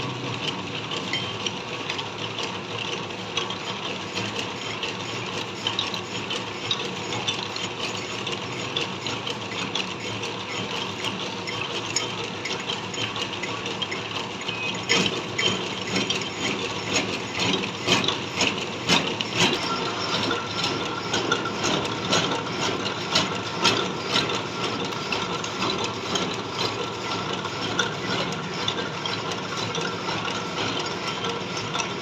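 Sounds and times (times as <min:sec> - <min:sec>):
metal lathe running: 0:00.2 - 0:32.0
steady whine: 0:15.0 - 0:31.5.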